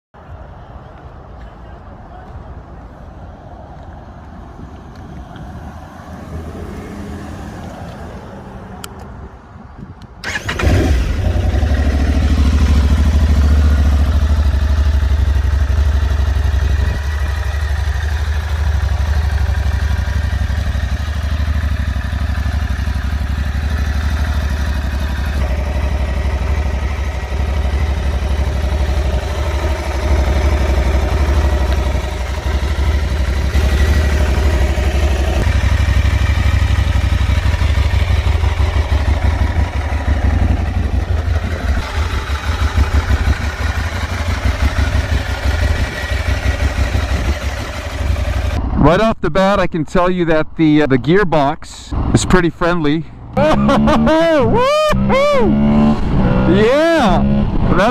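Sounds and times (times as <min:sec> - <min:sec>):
motorcycle engine starting and idling: 0:10.0 - 0:48.8.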